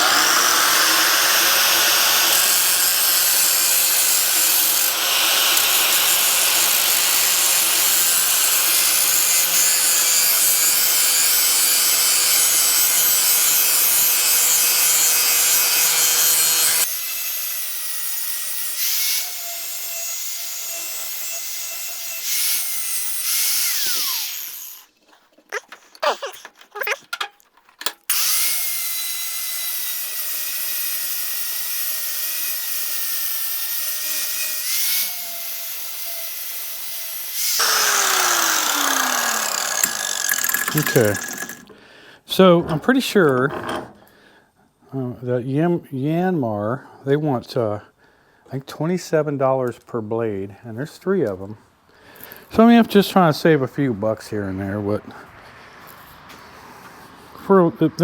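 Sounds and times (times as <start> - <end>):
power tool grinding steel blade: 0.0 - 27.3, 28.1 - 44.0.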